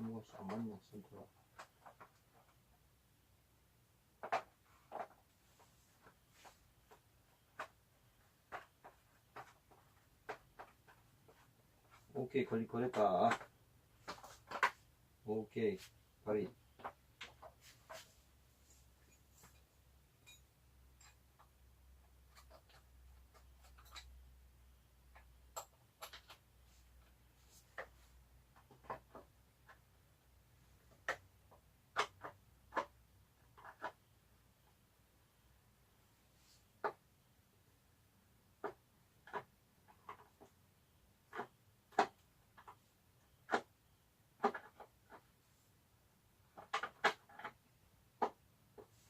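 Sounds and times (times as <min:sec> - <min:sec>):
hand tools clicking and tapping: 0:19.1 - 0:21.6.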